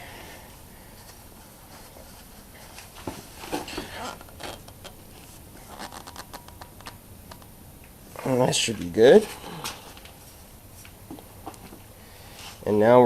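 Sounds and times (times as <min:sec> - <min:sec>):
paper towel scratching and rustling: 0:00.8 - 0:06.4.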